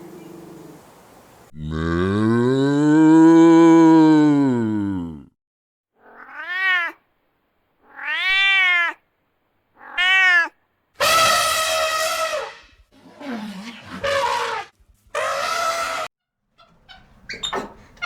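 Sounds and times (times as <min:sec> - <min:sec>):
cat meowing: 0:06.0 - 0:07.0, 0:07.8 - 0:09.0, 0:09.8 - 0:10.6.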